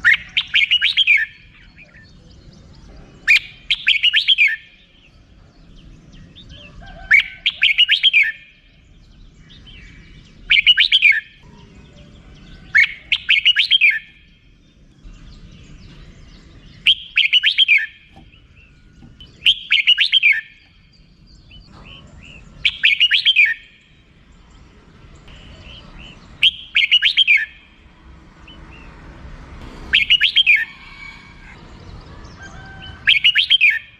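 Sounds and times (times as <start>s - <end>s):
bulbul chatter call: 0.0s - 23.8s.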